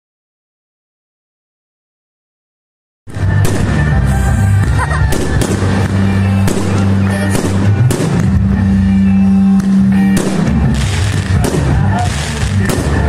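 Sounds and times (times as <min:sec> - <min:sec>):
fireworks bangs: 0:03.1 - 0:13.0
music with low bass: 0:03.1 - 0:13.0.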